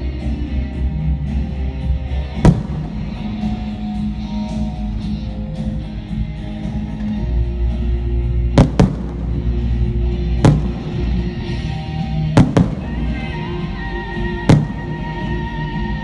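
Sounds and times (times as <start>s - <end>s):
background music: 0.0s - 16.0s
fireworks bangs: 2.4s - 3.7s, 8.6s - 11.6s, 12.2s - 13.6s, 14.4s - 15.5s.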